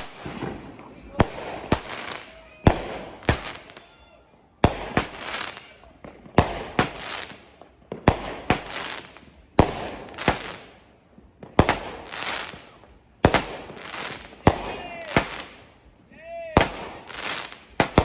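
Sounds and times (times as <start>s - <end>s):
fireworks banging and crackling: 0.0s - 18.0s.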